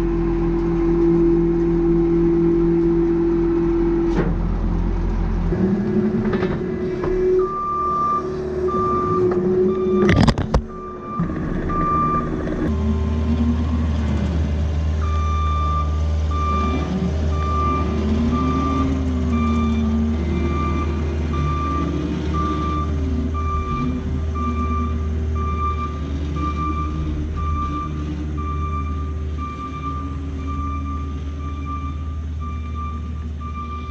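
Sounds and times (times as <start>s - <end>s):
diesel engine working: 0.0s - 33.9s
backup alarm beeping: 7.2s - 12.4s, 15.0s - 33.9s.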